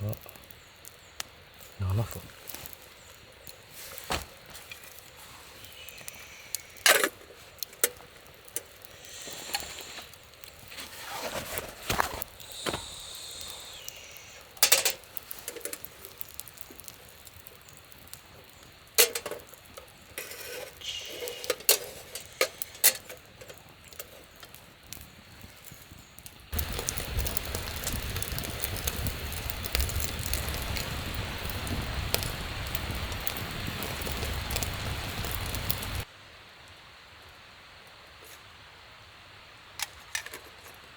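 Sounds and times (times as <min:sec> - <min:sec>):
rustling: 0:01.6 - 0:24.7
camp gear clinking and knocking: 0:14.6 - 0:15.8, 0:19.0 - 0:19.5, 0:20.2 - 0:24.1, 0:39.8 - 0:40.8.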